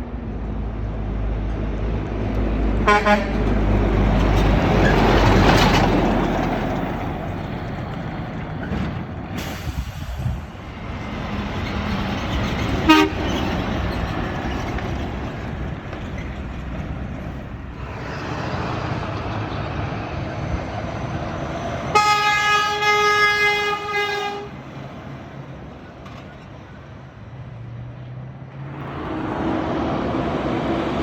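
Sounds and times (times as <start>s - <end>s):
road traffic: 0.0s - 31.0s
heavy vehicle passing: 0.5s - 31.0s
air horn blast: 2.8s - 3.5s, 12.9s - 13.3s, 21.9s - 24.6s.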